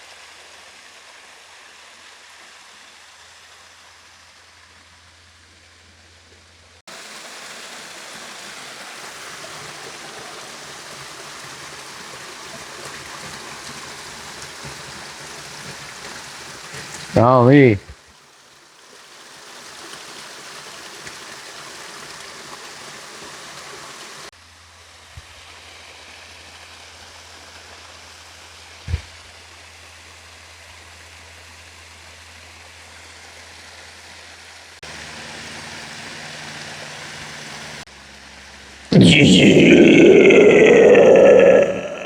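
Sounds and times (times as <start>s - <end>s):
water running over rocks: 6.9s - 24.3s.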